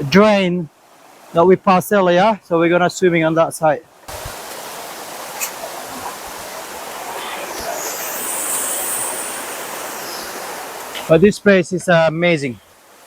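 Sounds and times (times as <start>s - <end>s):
running water rushing: 3.9s - 13.0s.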